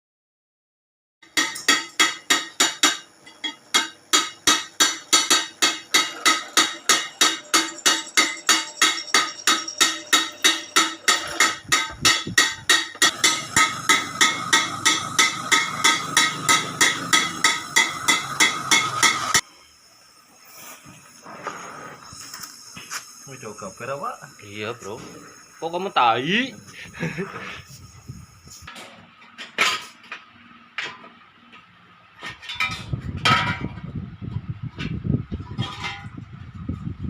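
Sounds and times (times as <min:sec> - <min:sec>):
hammer striking metal: 0:01.2 - 0:19.4.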